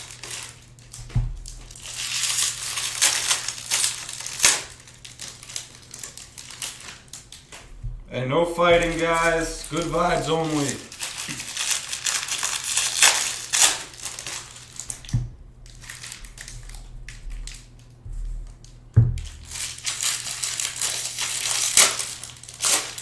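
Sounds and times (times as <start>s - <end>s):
packaging crinkling and rustling: 0.0s - 23.0s
dull thumps: 1.0s - 1.8s, 7.6s - 10.2s, 15.1s - 17.4s, 18.0s - 19.6s.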